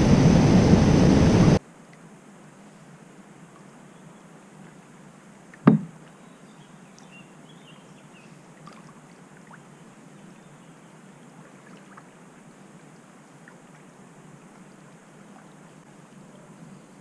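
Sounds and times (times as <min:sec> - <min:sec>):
sharp knock: 0:05.6 - 0:05.9
faint small ticks: 0:06.9 - 0:07.2.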